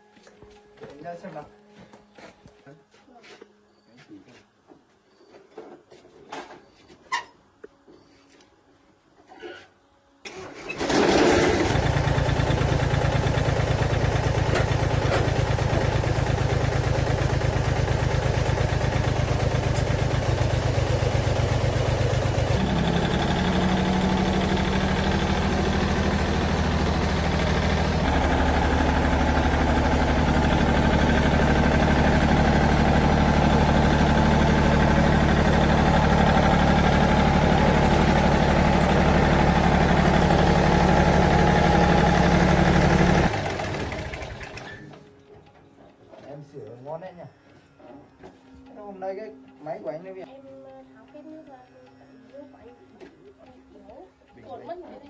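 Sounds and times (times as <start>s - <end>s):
tractor diesel engine running: 10.3s - 45.4s.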